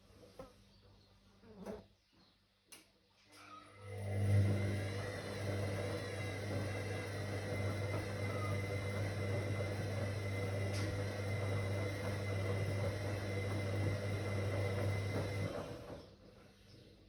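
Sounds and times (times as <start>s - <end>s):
washing machine motor hum: 3.4s - 17.0s.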